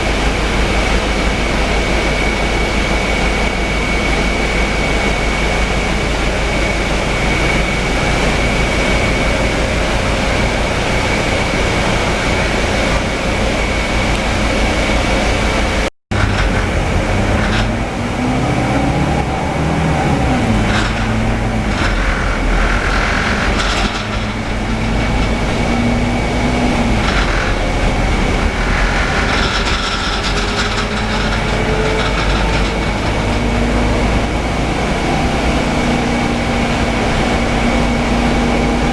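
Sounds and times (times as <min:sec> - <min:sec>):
bus engine and road rumble: 0:00.0 - 0:38.9
rattles: 0:16.1 - 0:18.0, 0:20.1 - 0:34.9.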